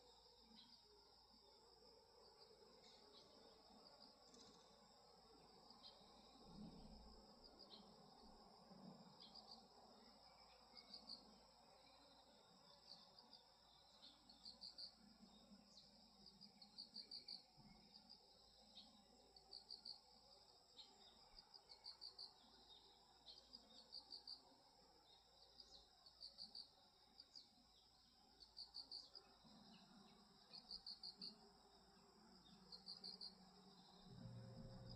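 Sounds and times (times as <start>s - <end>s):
crickets chirping: 0.0s - 34.9s.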